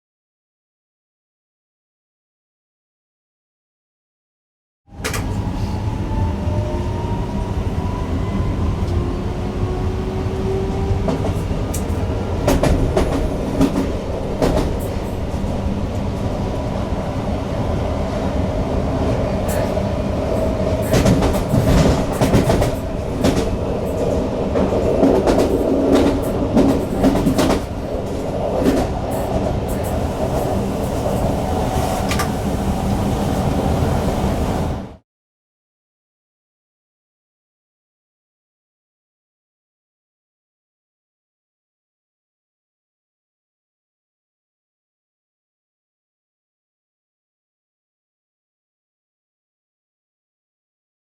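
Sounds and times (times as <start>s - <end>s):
train wheels rumbling on rail: 4.9s - 35.0s.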